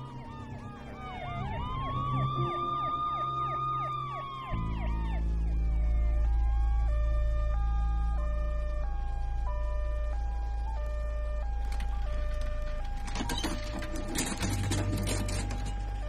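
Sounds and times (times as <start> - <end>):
two-tone ambulance siren: 0.0 - 16.0
sharp clattering noises: 11.6 - 16.0.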